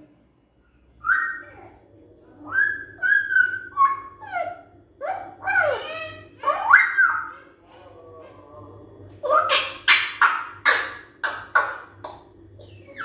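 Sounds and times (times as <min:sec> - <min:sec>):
parrot whistling calls: 0:02.5 - 0:07.3, 0:12.6 - 0:13.0.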